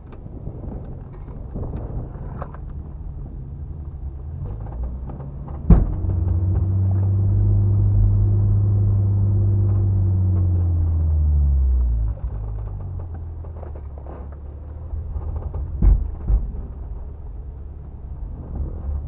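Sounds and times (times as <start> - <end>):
off-road vehicle engine rumble: 0.0 - 19.0
loud thump: 4.8 - 11.0, 15.1 - 17.4.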